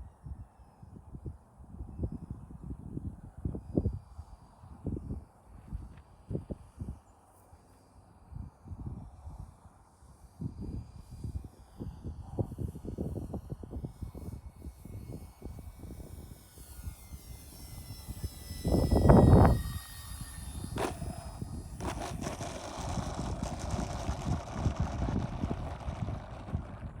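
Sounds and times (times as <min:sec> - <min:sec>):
model plane motors whining: 0:03.3 - 0:27.0
wind buffeting microphone: 0:12.4 - 0:27.0.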